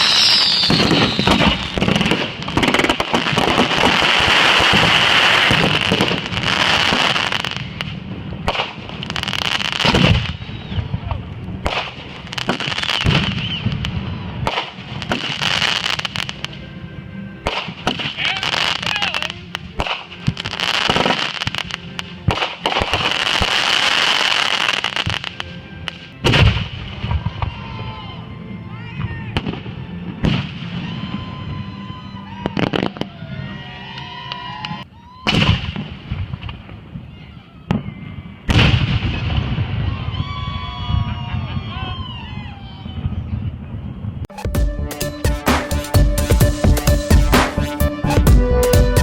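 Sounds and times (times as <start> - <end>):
fireworks bangs: 0.0 - 16.5, 17.4 - 27.6, 34.7 - 37.0, 37.7 - 41.7
fireworks crackling: 0.0 - 16.6, 17.4 - 27.6.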